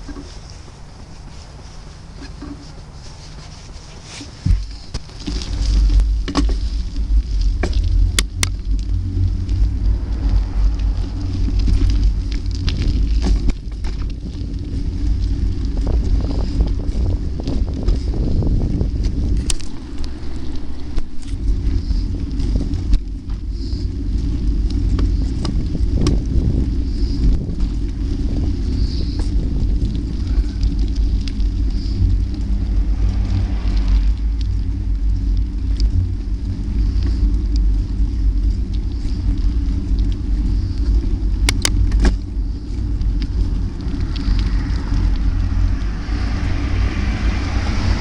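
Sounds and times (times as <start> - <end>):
wind buffeting microphone: 0.0 - 48.0
sharp clicks or rattles: 41.4 - 42.3.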